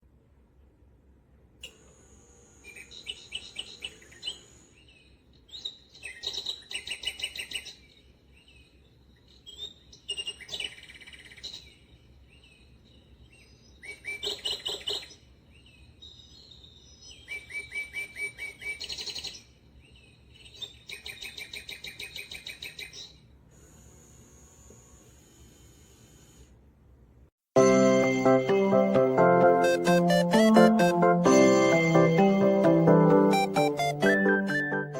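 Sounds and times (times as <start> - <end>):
bird song of high chirps: 2.7 - 23.3.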